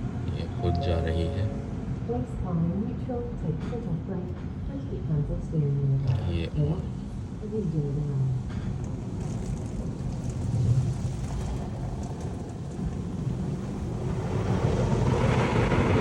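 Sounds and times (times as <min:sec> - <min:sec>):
car wash machinery rumble: 0:06.9 - 0:16.0.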